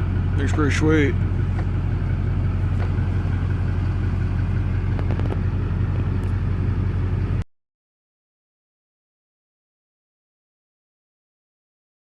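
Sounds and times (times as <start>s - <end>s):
car engine humming: 0.0s - 7.4s.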